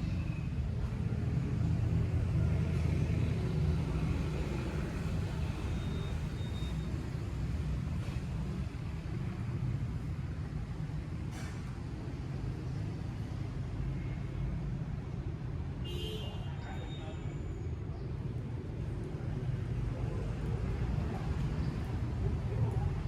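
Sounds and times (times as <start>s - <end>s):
motor vehicle rumbling: 17.1s - 23.0s.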